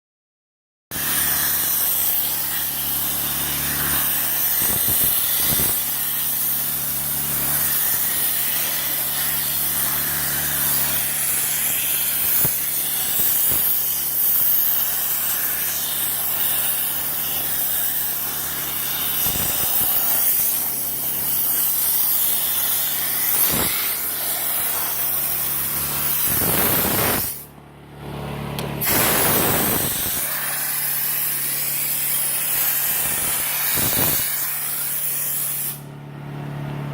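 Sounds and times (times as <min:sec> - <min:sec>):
steam spraying hiss: 0:01.0 - 0:27.5, 0:28.8 - 0:35.8
low machine hum: 0:27.4 - 0:29.3.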